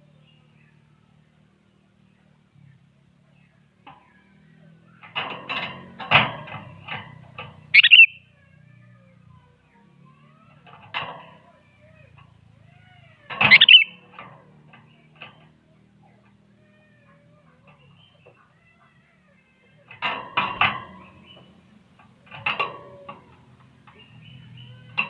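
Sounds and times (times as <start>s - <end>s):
faint low hum: 0.0s - 25.0s
bird calling harshly: 7.6s - 8.4s, 12.8s - 14.0s.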